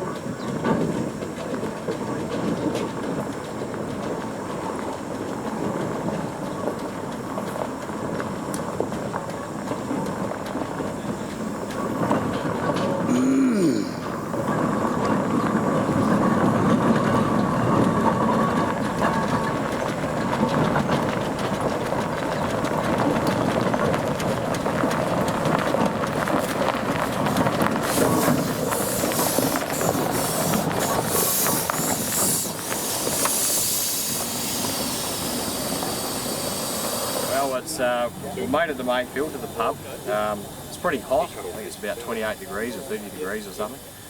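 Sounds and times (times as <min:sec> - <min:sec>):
steam engine clanking and chuffing: 0:00.0 - 0:44.0
steam hiss: 0:26.4 - 0:44.0.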